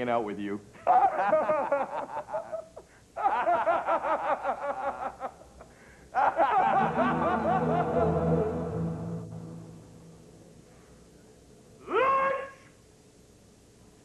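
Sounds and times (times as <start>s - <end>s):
person laughing: 6.3s - 8.7s
music: 6.6s - 10.6s.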